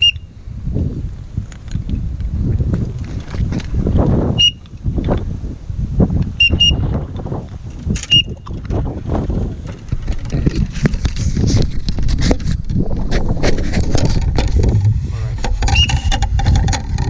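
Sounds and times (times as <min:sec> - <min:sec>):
high whistled peeps: 0:00.0 - 0:00.3, 0:04.4 - 0:04.6, 0:06.4 - 0:06.8
wind buffeting microphone: 0:00.0 - 0:17.0.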